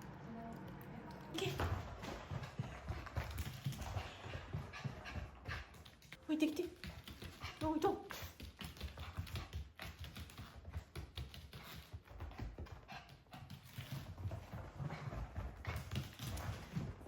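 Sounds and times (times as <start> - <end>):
puppy claws clicking and tapping: 2.9 - 14.1.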